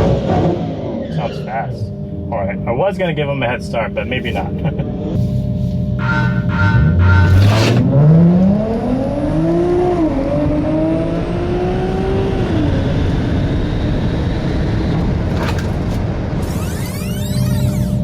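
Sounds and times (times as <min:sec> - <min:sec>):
car engine accelerating hard: 0:05.2 - 0:16.4.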